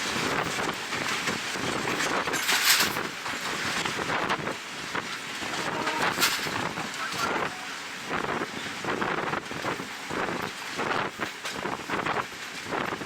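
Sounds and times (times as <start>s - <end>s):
train running noise: 0.0s - 13.0s
wind buffeting microphone: 0.0s - 13.0s.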